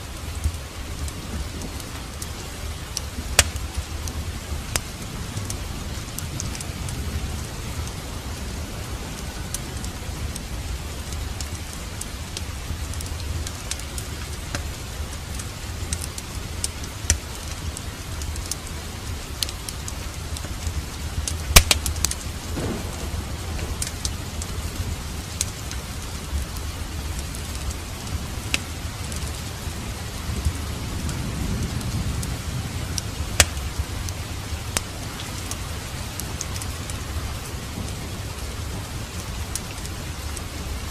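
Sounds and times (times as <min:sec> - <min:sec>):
distant thunder rumble: 0:00.0 - 0:40.9
fireplace popping and crackling: 0:00.0 - 0:40.9
steady rain: 0:00.0 - 0:40.9.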